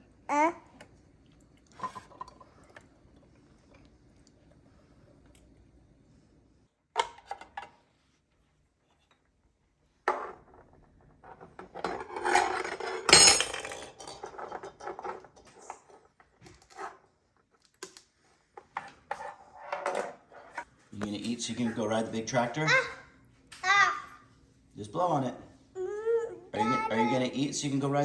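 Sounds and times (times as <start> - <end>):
cutlery scraping and knocking: 11.4 - 15.9.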